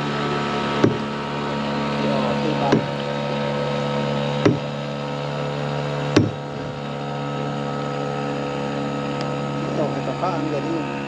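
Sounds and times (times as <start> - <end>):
outboard motor droning: 0.0 - 11.0
short knocks: 0.8 - 1.2, 2.7 - 3.0, 4.4 - 4.8, 6.1 - 6.8.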